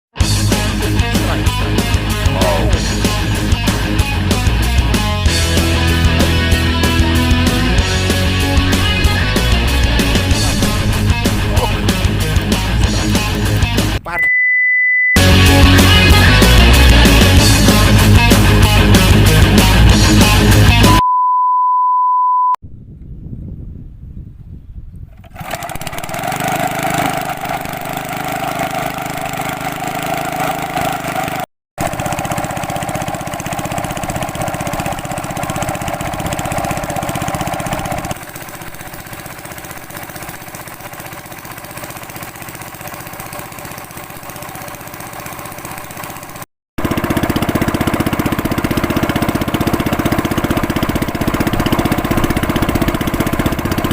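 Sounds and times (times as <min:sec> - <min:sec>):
small boat engine running: 0:00.2 - 0:14.0, 0:15.2 - 0:20.5, 0:25.2 - 0:53.9
high beep: 0:14.1 - 0:15.2, 0:20.9 - 0:22.6.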